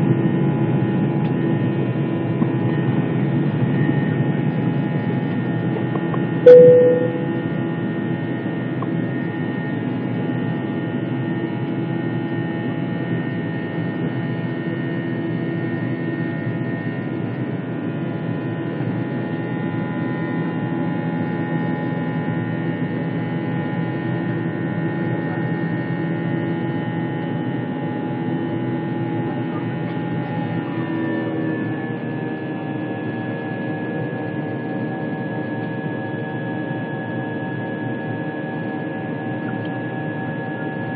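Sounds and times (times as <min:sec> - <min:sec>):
short sharp tone: 0:06.5 - 0:07.5.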